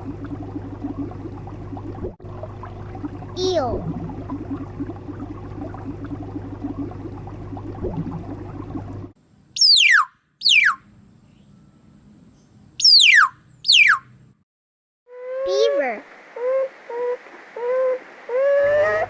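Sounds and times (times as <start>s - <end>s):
low hum with faint bubbling: 0.0s - 9.6s.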